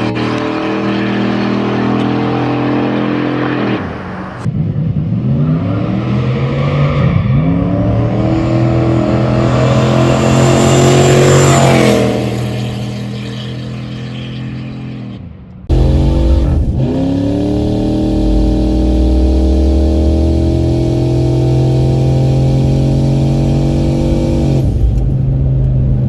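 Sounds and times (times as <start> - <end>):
car engine revving: 0.0 - 26.0
high whine: 8.3 - 26.0.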